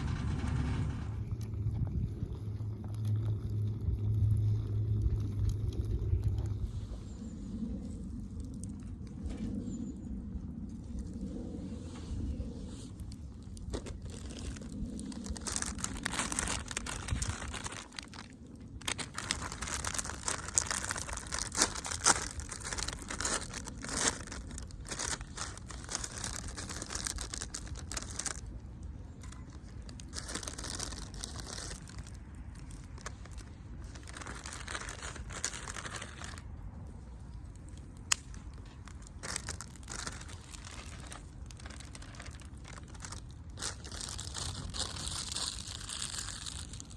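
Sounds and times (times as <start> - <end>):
wood fire crackling and popping: 37.6 - 41.4.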